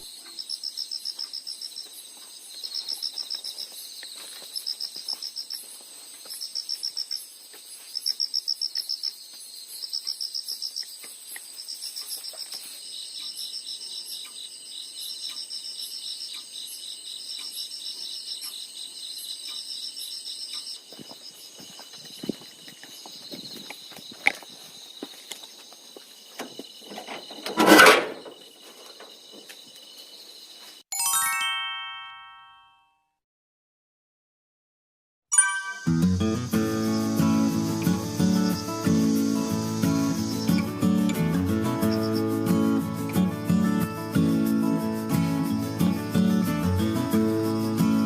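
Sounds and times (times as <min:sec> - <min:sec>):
crickets trilling: 0:00.0 - 0:30.8, 0:35.9 - 0:48.0
high-pitched insect ringing: 0:02.6 - 0:05.7, 0:06.3 - 0:24.2, 0:35.4 - 0:48.0.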